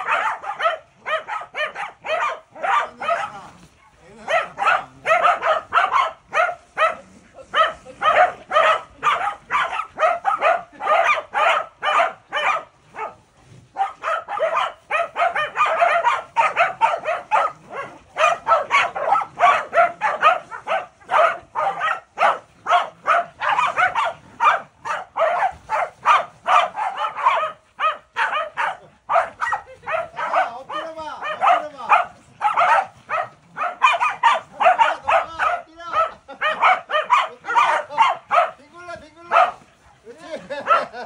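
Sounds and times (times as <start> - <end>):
dogs barking: 0.0 - 41.0.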